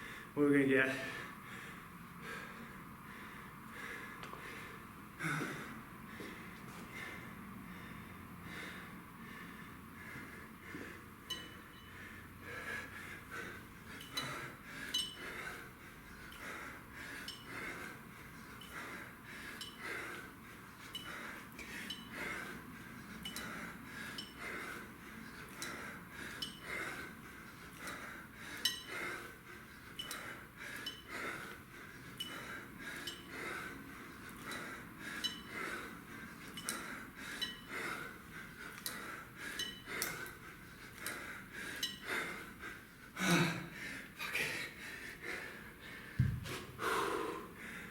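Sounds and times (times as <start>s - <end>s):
man breathing hard: 0.0s - 47.9s
light metal clinks: 11.3s - 12.0s, 13.9s - 15.4s, 19.5s - 20.0s, 20.8s - 22.3s, 26.3s - 26.7s, 35.2s - 35.7s, 39.5s - 40.3s.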